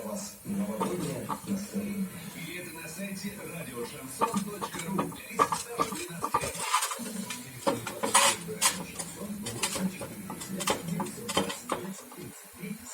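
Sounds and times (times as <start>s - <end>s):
compressor humming: 0.0s - 12.9s
metallic knocking and clatter: 4.2s - 12.2s.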